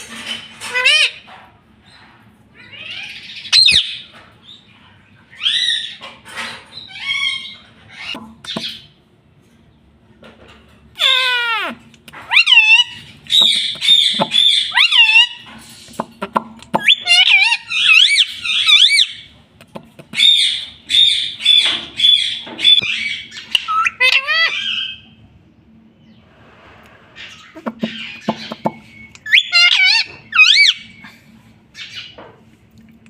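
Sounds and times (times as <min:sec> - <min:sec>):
parrot squawking and whistling: 0:02.7 - 0:04.0, 0:11.0 - 0:15.5, 0:16.7 - 0:19.3, 0:20.2 - 0:25.0, 0:27.2 - 0:31.0.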